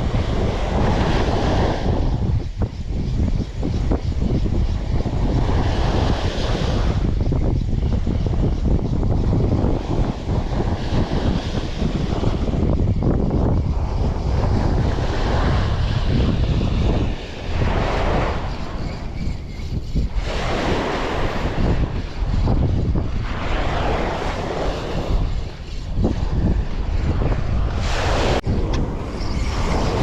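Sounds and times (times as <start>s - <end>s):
sea waves: 0.0s - 2.2s, 13.7s - 30.0s
wind buffeting microphone: 0.0s - 30.0s.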